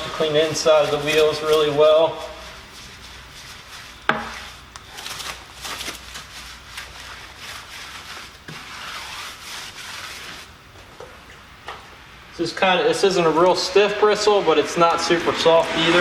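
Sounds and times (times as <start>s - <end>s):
brush scrubbing a wheel: 0.0s - 10.6s.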